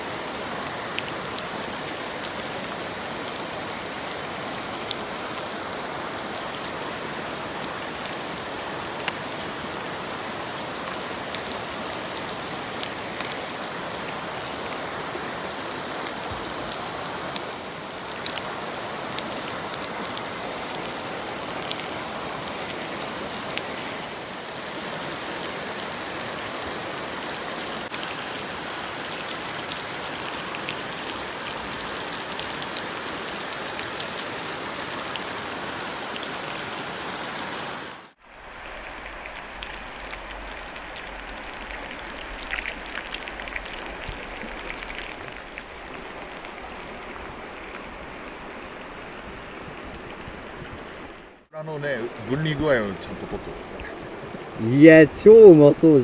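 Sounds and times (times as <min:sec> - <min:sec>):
chicken sizzling in a frying pan: 0:05.6 - 0:27.0.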